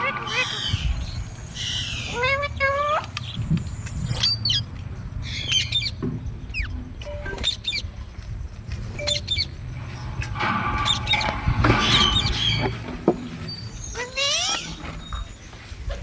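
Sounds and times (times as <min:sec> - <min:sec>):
parrots chirping and squawking: 0:00.0 - 0:03.4, 0:04.0 - 0:06.7, 0:09.0 - 0:15.5.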